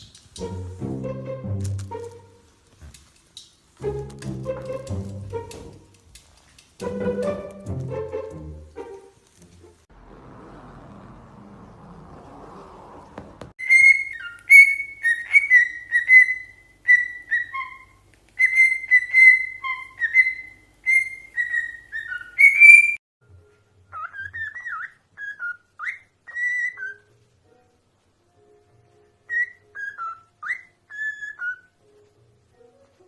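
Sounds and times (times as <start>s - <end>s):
parrot whistling: 13.6s - 23.0s, 23.9s - 27.1s, 29.3s - 31.7s.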